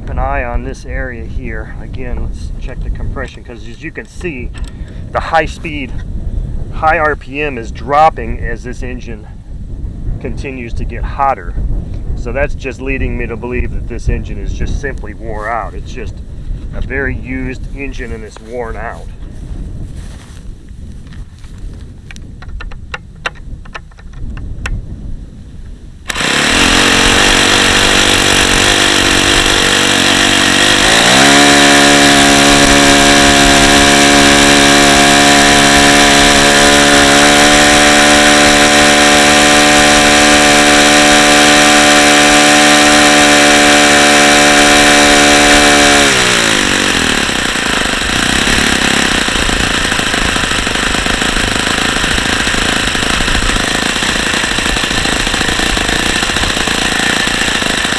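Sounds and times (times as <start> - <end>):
model glow engine running: 26.1 - 57.9.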